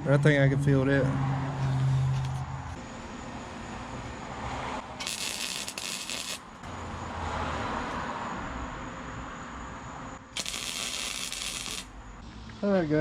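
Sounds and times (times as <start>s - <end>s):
arc welding crackling hiss: 5.0s - 6.6s, 10.3s - 12.0s.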